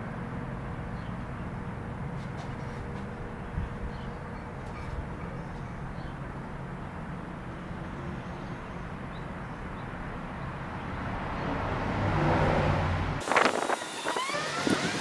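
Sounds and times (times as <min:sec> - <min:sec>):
machine humming and hissing: 0:13.2 - 0:15.0.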